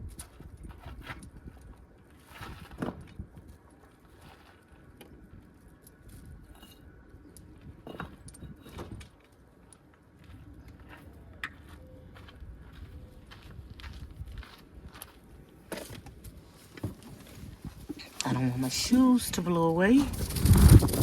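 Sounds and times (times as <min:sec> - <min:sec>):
wind rumble on microphone: 0:00.0 - 0:04.4, 0:05.1 - 0:09.2, 0:11.9 - 0:15.4, 0:17.3 - 0:21.0.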